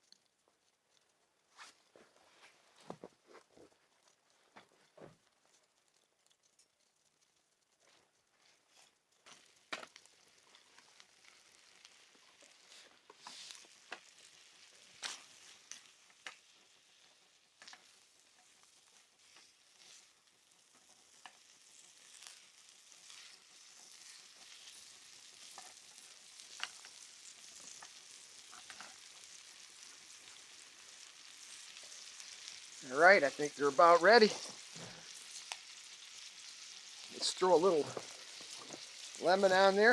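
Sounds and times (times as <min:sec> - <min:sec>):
sharp pops and crackles: 0:02.8 - 0:29.2, 0:29.8 - 0:39.8
shrimp sizzling in a pan: 0:08.4 - 0:39.9.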